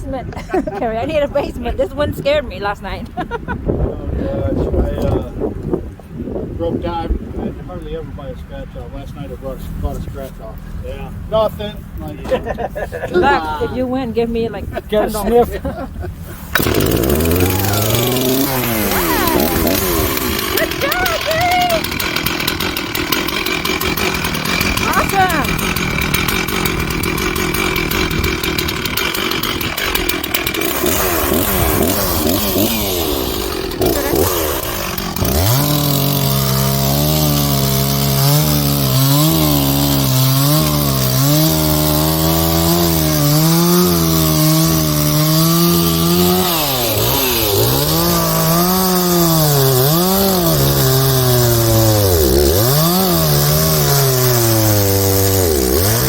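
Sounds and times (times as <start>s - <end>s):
chainsaw cutting wood: 16.2s - 56.0s.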